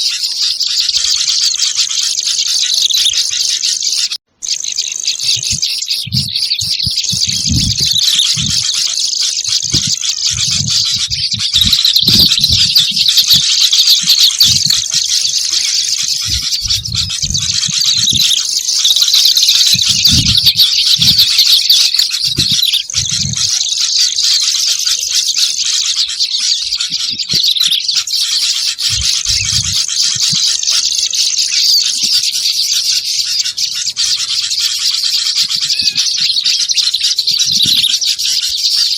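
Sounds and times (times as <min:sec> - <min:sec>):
bird chirping chatter: 0:00.0 - 0:38.9
low thuds: 0:05.4 - 0:18.4.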